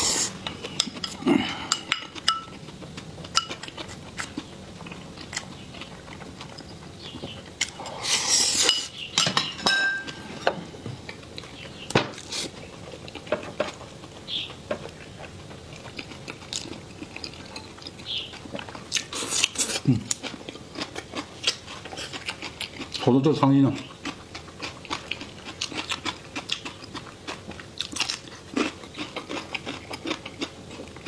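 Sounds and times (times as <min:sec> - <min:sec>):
rustling slurp: 0:00.0 - 0:01.8
utensils clinking against dishes: 0:00.4 - 0:02.6, 0:03.3 - 0:03.9, 0:07.8 - 0:10.6.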